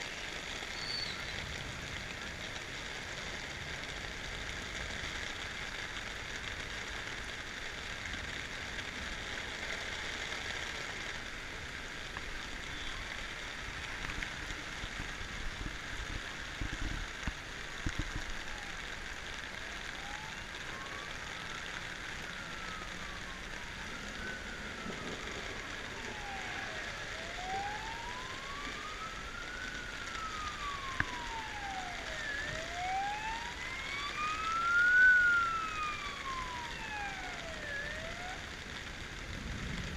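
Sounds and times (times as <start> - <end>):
steady rushing noise: 1.2 - 39.9
emergency siren wailing: 12.4 - 16.5, 17.8 - 39.9.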